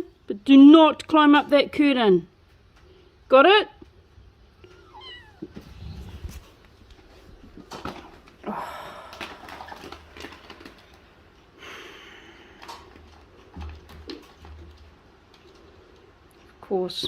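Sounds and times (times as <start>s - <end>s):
cat meowing softly: 4.6s - 5.6s
rustling: 4.6s - 8.4s, 9.0s - 11.5s.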